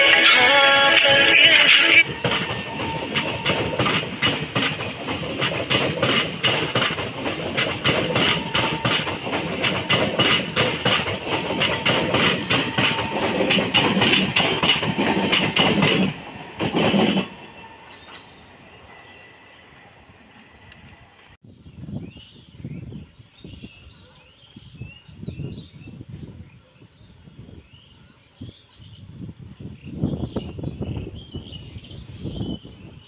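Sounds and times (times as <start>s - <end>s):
train coaches rumbling past: 0.0s - 21.4s
wheels clickety-clack: 2.0s - 18.3s.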